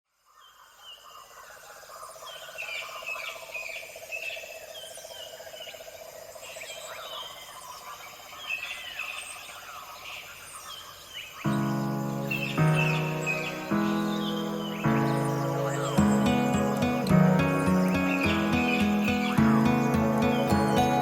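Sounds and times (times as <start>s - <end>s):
birds chirping and calling: 11.4s - 21.0s.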